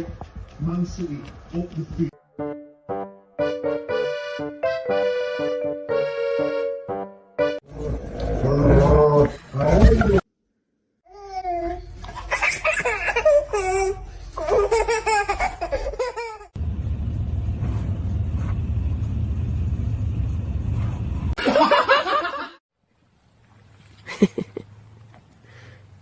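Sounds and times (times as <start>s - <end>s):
person laughing: 9.3s - 10.2s, 24.0s - 24.7s
steady low rumble: 16.6s - 21.4s.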